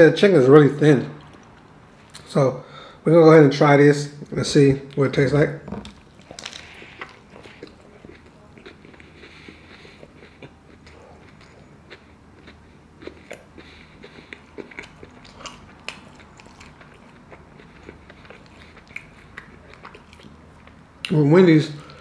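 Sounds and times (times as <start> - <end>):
person chewing crunchy chicken: 5.8 - 21.2.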